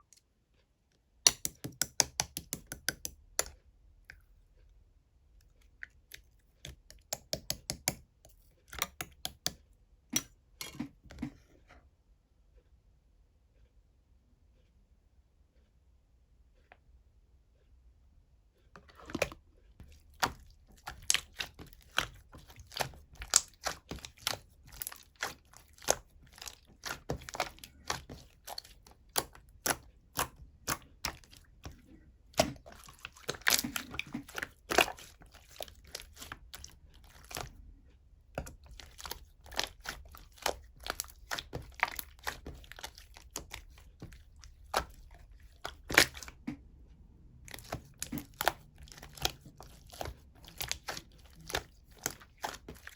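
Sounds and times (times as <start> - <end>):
slime squishing with wet pops: 1.2 - 4.3, 5.5 - 10.8, 18.8 - 46.6, 47.4 - 52.9.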